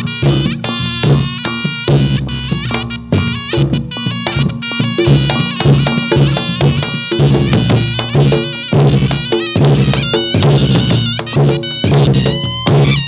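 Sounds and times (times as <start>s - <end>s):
drum strikes: 0.0s - 13.0s
sustained melody on pitched instrument: 3.1s - 13.0s.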